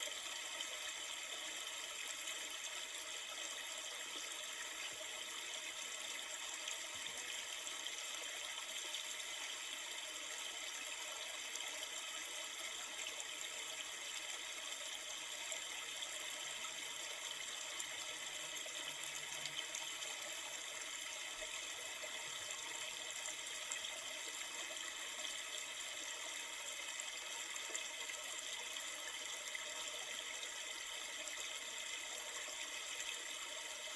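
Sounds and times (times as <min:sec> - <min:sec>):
river water flowing: 0:13.4 - 0:30.0.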